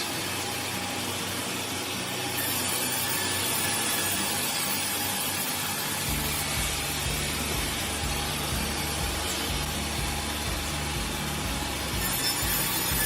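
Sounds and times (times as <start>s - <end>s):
heavy machinery running: 0.0s - 13.0s
deep strong hum: 6.1s - 12.0s.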